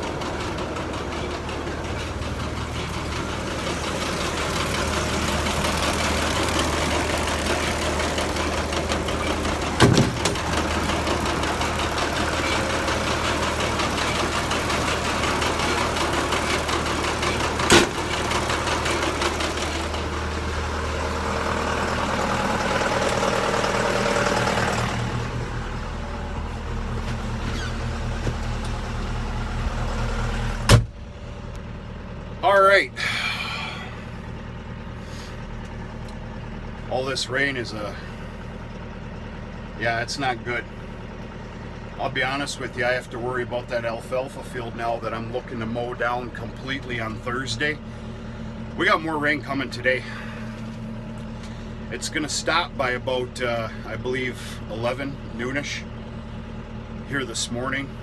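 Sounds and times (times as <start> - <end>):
tractor engine idling: 0.0 - 58.0
sharp knocks: 9.8 - 10.7.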